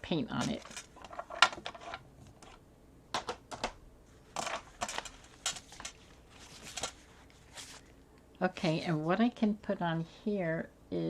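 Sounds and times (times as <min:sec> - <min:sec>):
craft tools clicking and tapping: 0:03.2 - 0:03.8, 0:04.4 - 0:06.0.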